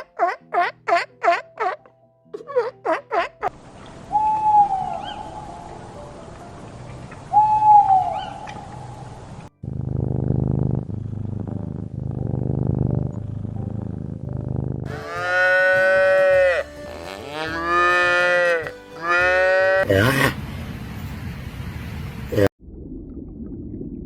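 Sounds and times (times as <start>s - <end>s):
cattle mooing: 10.0s - 20.4s.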